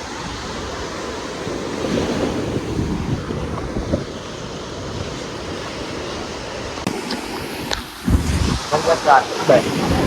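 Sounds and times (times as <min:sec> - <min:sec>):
waves washing onto beach: 0:00.0 - 0:10.0
wind buffeting microphone: 0:00.0 - 0:10.0.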